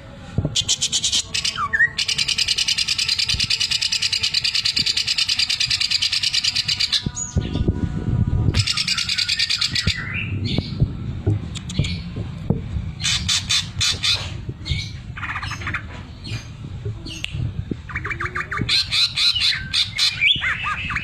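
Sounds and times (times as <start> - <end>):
bird rattling song: 8.6 - 10.8, 11.6 - 12.1, 13.0 - 21.0.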